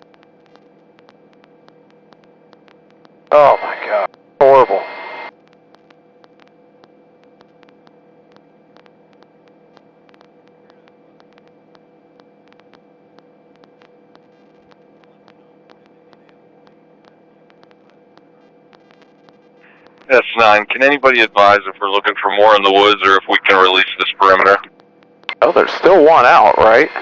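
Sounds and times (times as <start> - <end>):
faint irregular clicks: 0.0 - 3.3, 5.3 - 20.1, 24.4 - 25.4
electrical hum: 0.0 - 27.0.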